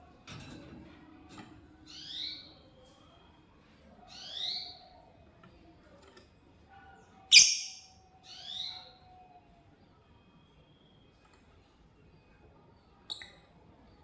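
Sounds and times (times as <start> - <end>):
lovebird shrill chirps: 7.3 - 8.7.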